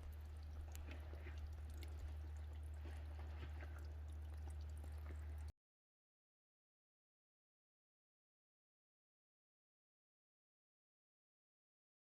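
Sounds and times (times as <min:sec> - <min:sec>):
steady low hum: 0:00.0 - 0:05.5
water trickling and dripping: 0:00.0 - 0:05.5.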